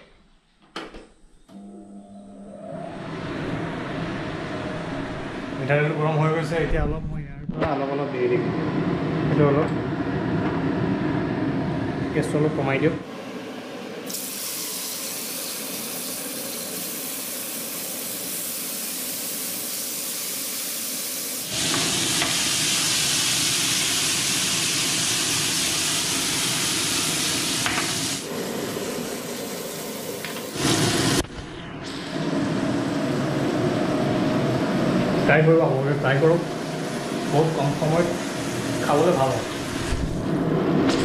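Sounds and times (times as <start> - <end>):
food sizzling in oil: 14.1 - 31.2.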